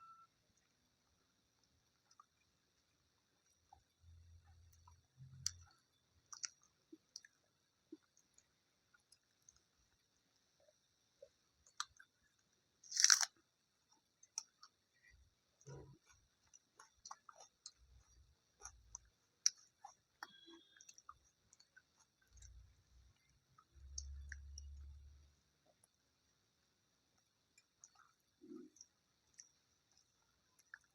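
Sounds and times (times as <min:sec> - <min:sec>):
person chewing: 0:04.5 - 0:09.8, 0:11.2 - 0:24.8, 0:27.2 - 0:30.9
crackly crunch: 0:12.8 - 0:14.8.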